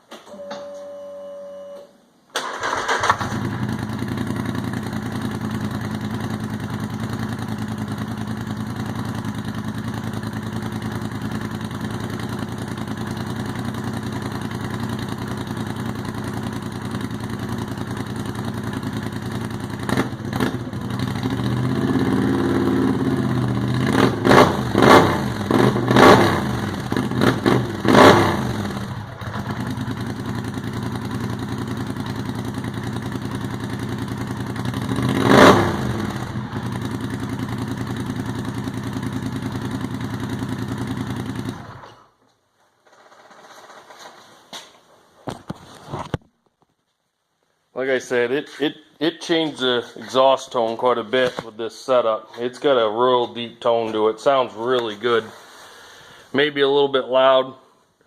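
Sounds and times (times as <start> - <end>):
atv engine idling and revving: 3.2 - 42.0.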